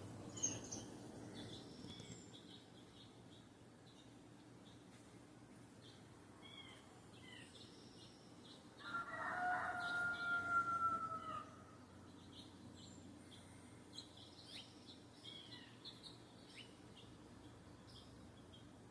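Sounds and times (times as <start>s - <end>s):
small birds chirping: 0.0s - 9.0s, 11.2s - 18.9s
rooster crowing: 8.8s - 11.8s.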